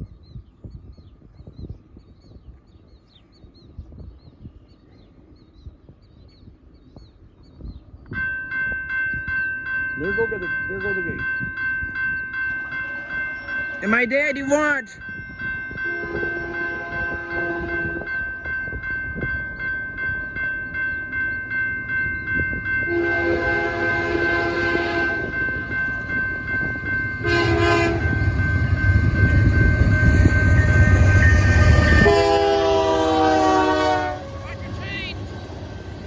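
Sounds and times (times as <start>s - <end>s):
train rumble: 7.9s - 36.0s
crossing warning bells ringing: 8.1s - 36.0s
locomotive air horn blasts: 15.8s - 18.1s, 22.9s - 25.4s, 27.2s - 34.8s.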